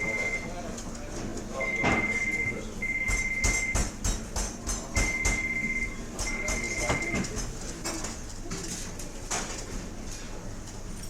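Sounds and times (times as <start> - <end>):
phone ringing with electronic beeps: 0.0 - 0.5, 1.6 - 3.7.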